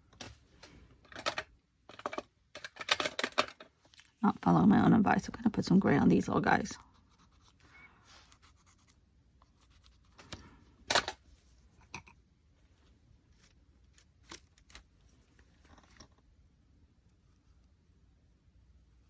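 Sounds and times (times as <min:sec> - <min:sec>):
rubbing and scratching on paper: 0:06.8 - 0:10.4.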